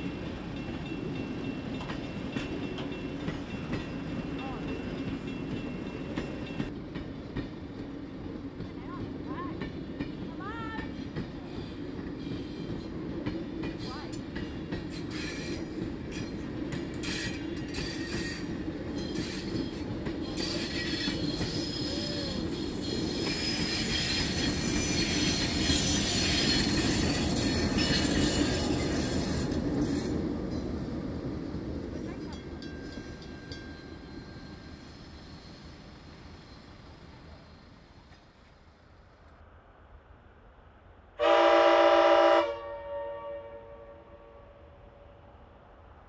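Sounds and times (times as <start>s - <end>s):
train wheels on rails: 0.0s - 39.6s
wheels squealing: 17.0s - 30.2s.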